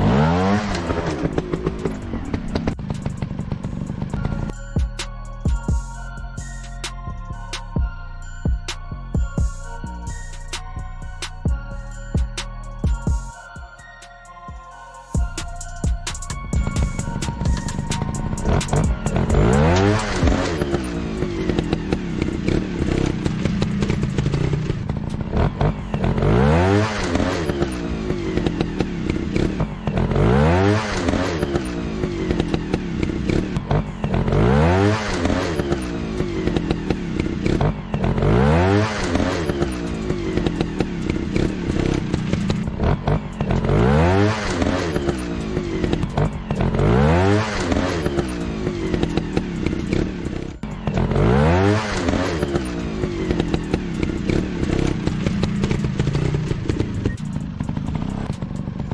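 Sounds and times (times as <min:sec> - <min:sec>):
dirt bike engine revving: 0:00.0 - 0:04.5, 0:16.4 - 0:58.9.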